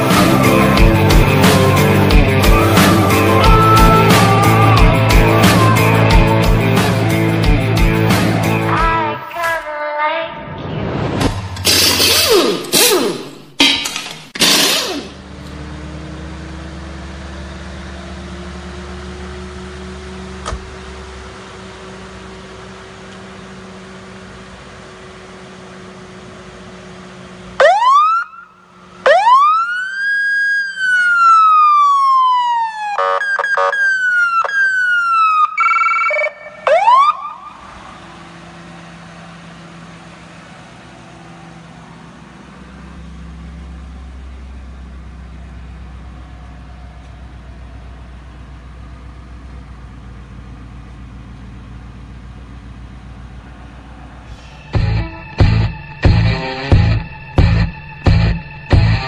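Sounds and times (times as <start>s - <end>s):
police siren wailing: 0.0s - 9.5s, 27.6s - 43.8s, 44.8s - 49.0s, 53.0s - 59.0s
car engine idling: 0.0s - 9.7s, 11.2s - 29.2s, 36.3s - 59.0s.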